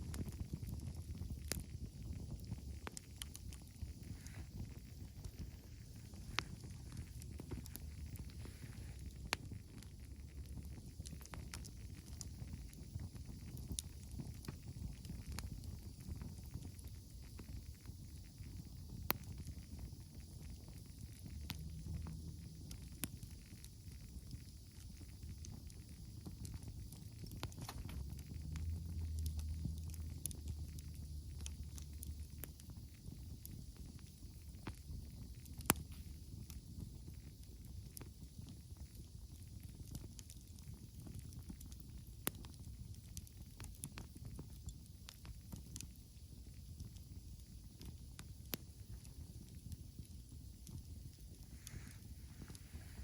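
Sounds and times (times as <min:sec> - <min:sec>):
campfire crackling: 0:00.0 - 0:53.0
low steady rumble: 0:00.0 - 0:53.0
sharp fire pops: 0:00.0 - 0:53.0.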